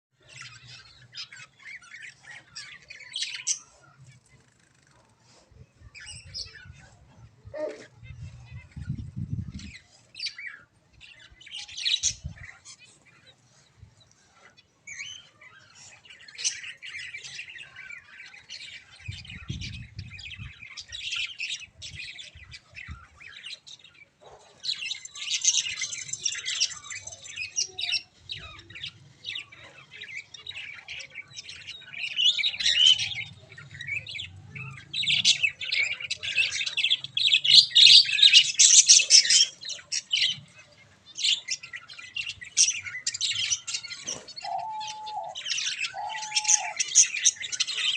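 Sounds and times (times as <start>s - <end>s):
budgerigars chattering: 14.2s - 47.9s.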